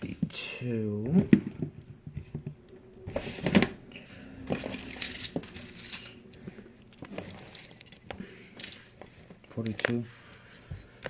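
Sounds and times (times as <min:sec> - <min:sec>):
rustling: 0:01.2 - 0:09.5.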